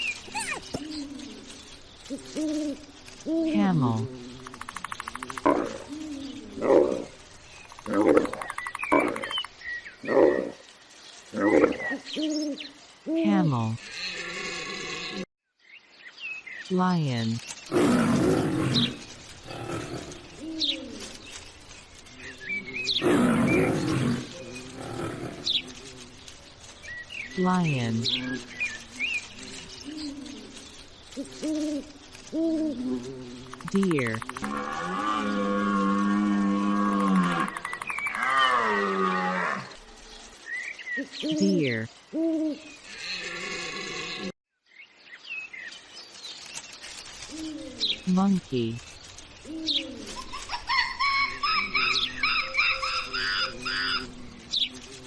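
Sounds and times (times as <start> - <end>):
birds chirping: 0.0 - 55.0
lion roaring: 4.0 - 7.2, 13.8 - 15.2, 17.7 - 20.5, 22.4 - 26.2, 32.6 - 39.7.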